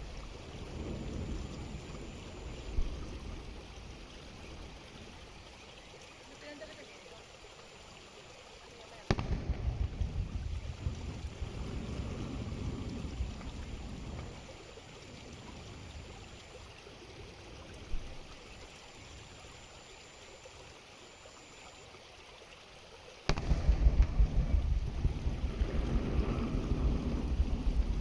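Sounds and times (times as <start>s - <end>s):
wind buffeting microphone: 0.0s - 5.6s, 9.1s - 18.4s, 23.3s - 28.0s.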